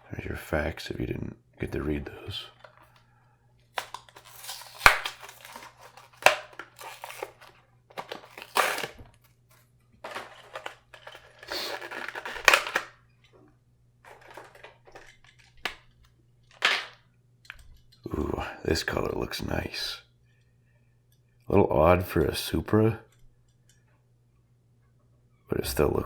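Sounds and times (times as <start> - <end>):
plastic packaging tearing: 3.8 - 9.1, 10.1 - 13.0
plastic snapping: 3.8 - 9.1, 10.1 - 13.0.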